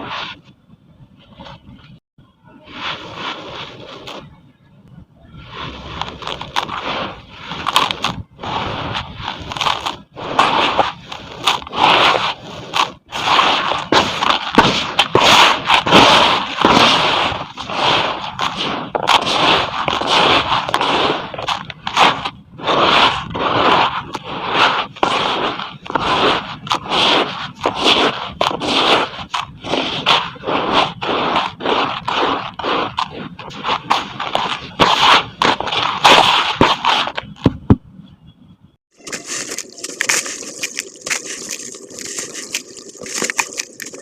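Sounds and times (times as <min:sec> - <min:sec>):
sharp cracks: 0:05.9 - 0:37.5, 0:39.0 - 0:44.0
concrete crumbling in water: 0:39.0 - 0:44.0.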